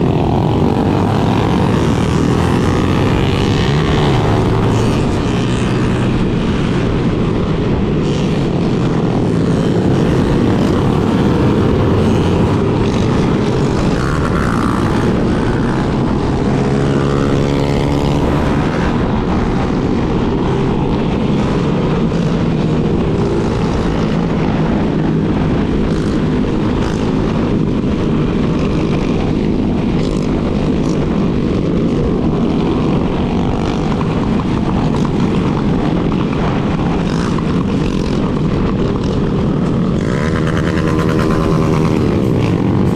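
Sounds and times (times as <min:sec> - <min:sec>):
motorcycle engine running: 0:00.0 - 0:42.9
motorcycle revving up: 0:00.0 - 0:42.9
other motorcycles riding: 0:00.0 - 0:42.9
wind rush on microphone: 0:00.0 - 0:42.9.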